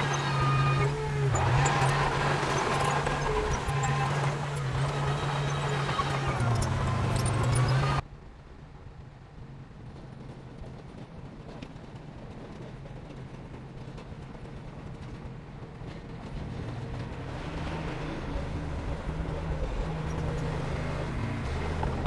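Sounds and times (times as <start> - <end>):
heavy diesel engine rumbling: 0.0 - 8.0, 15.7 - 22.0.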